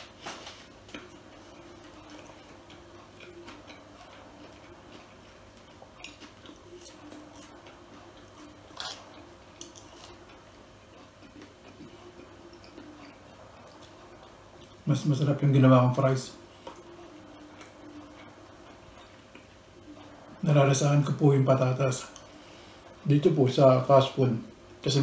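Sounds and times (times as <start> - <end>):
person chewing: 0.4 - 14.8, 16.5 - 20.2.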